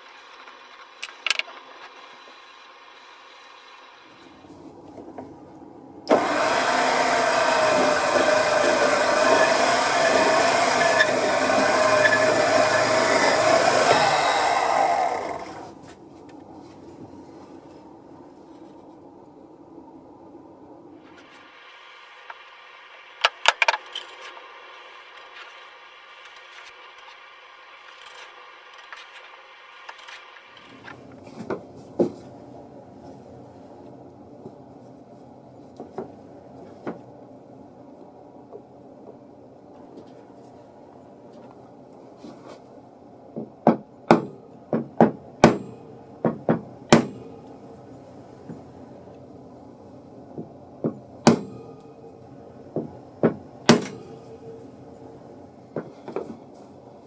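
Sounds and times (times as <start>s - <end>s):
steady hiss: 0.0s - 34.0s
ringing hammer blows: 44.1s - 44.6s, 45.4s - 48.7s, 51.2s - 55.3s.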